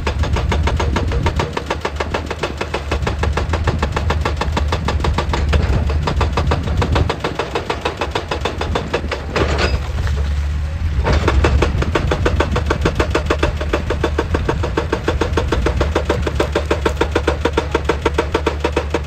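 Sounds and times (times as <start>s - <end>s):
excavator diesel engine drone: 0.0s - 19.0s
rapid even knocking: 11.2s - 19.0s.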